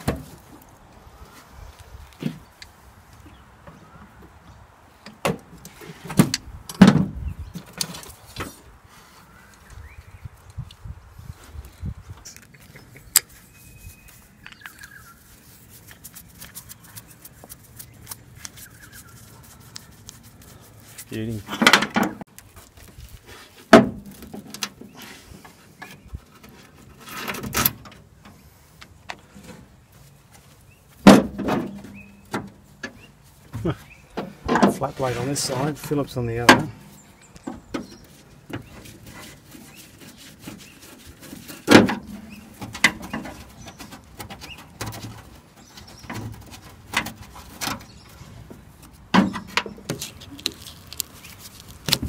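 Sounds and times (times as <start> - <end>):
faint rustling and handling: 11.2 - 21.6, 22.2 - 27.3, 49.7 - 52.0.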